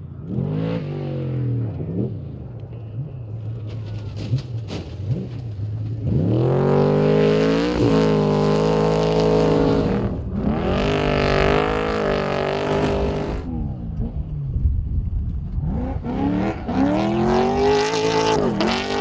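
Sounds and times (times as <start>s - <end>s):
truck engine revving: 3.5s - 14.2s, 15.6s - 19.0s.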